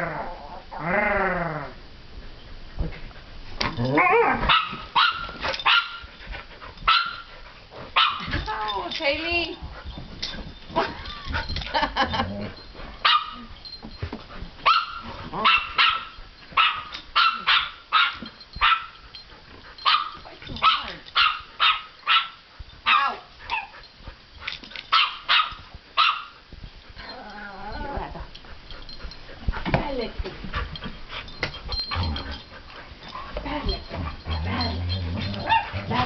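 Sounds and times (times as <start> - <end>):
dogs barking: 4.4 - 6.1, 6.9 - 7.3, 7.9 - 8.3, 13.0 - 13.4, 14.6 - 19.0, 19.8 - 23.7, 24.9 - 26.4, 34.0 - 36.0.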